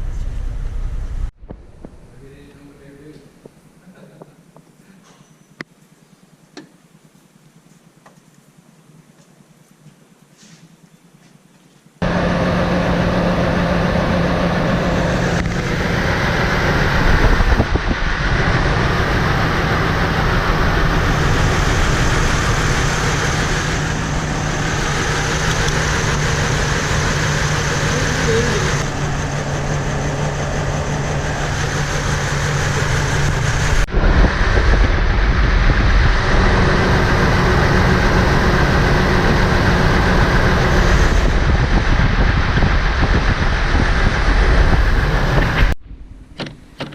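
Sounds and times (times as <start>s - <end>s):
car engine running: 12.0s - 46.3s.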